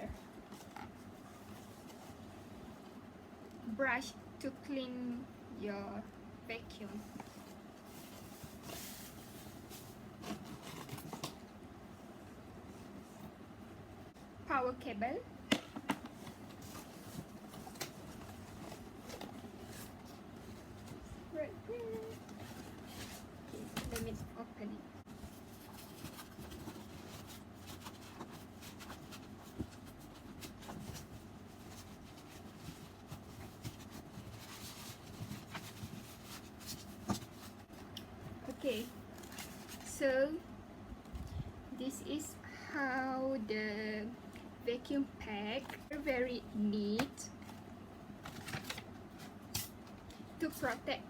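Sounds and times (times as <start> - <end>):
plastic packaging rustling: 7.1 - 11.4, 25.1 - 37.9, 38.5 - 40.0.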